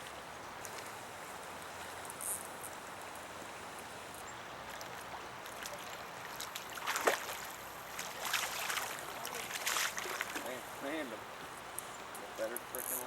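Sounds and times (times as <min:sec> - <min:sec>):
river water running: 0:00.0 - 0:13.0
water splashing: 0:03.9 - 0:11.5.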